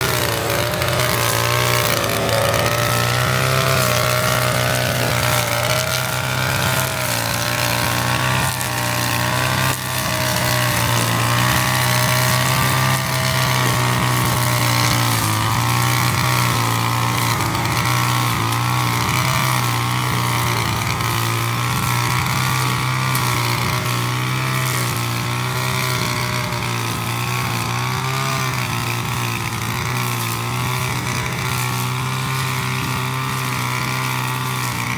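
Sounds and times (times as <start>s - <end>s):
brush cutter engine mowing grass: 0.0s - 34.9s.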